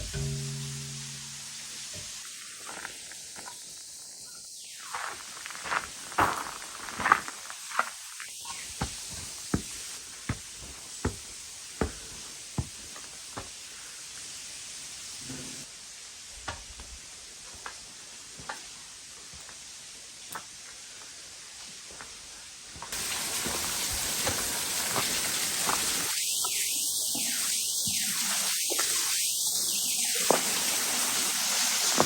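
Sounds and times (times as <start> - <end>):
running water hissing: 0.0 - 16.3, 22.3 - 32.0.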